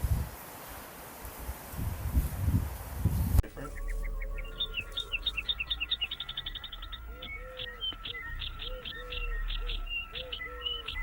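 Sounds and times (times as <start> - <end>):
birds chirping: 3.4 - 11.0
low arched bird notes: 3.4 - 11.0.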